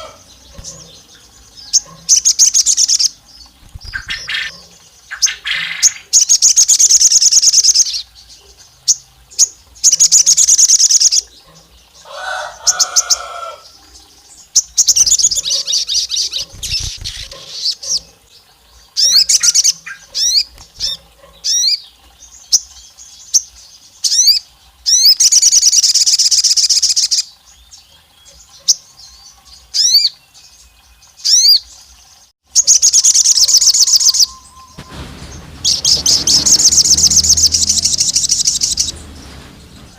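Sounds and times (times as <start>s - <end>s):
sliding bird chirps: 1.7s - 4.6s, 14.9s - 17.9s, 32.9s - 39.9s.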